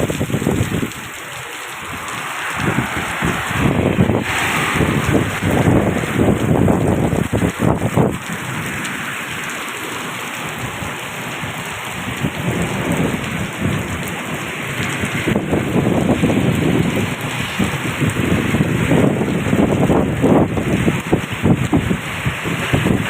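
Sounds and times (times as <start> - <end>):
low rumbling surges: 0.0 - 8.8
heavy rain falling: 0.0 - 23.0.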